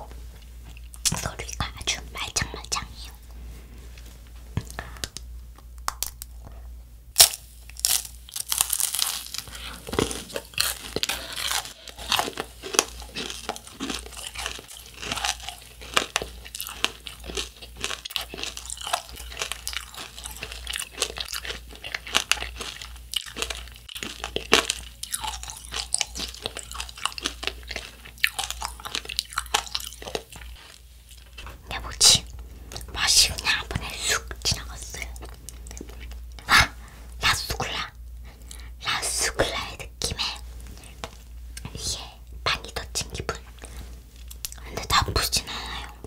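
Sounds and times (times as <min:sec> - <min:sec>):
child crunching hard candy: 0:07.2 - 0:46.0.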